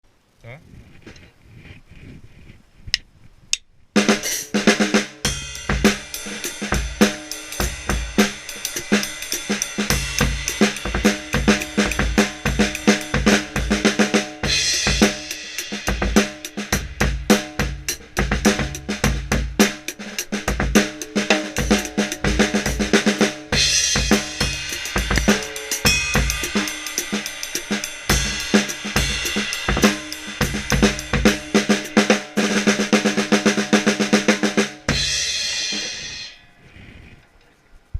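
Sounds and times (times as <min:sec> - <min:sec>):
drum kit beat: 0:04.0 - 0:36.4
cymbal crashes: 0:05.2 - 0:17.6, 0:23.5 - 0:36.5
drumstick clicks: 0:24.6 - 0:25.5.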